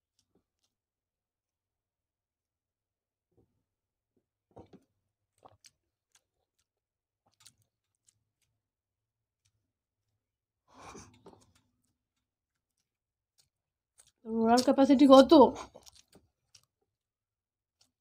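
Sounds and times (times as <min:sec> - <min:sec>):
lip smacks and chewing clicks: 0:04.6 - 0:06.7, 0:07.3 - 0:08.5, 0:10.8 - 0:16.7.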